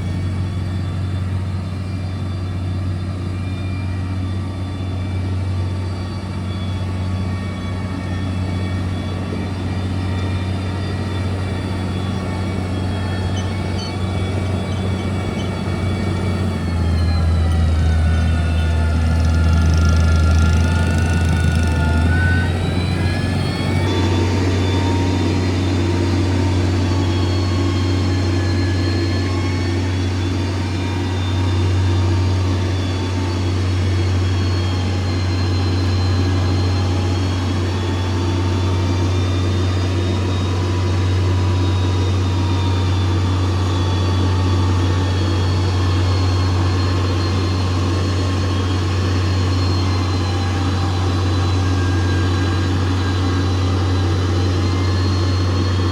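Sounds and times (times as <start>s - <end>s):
diesel engine running: 0.0s - 55.9s
thin whine: 0.0s - 55.9s.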